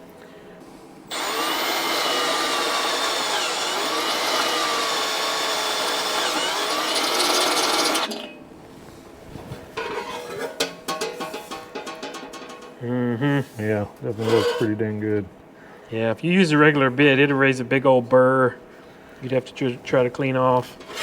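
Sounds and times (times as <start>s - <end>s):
power drill boring a hole: 1.1s - 8.2s.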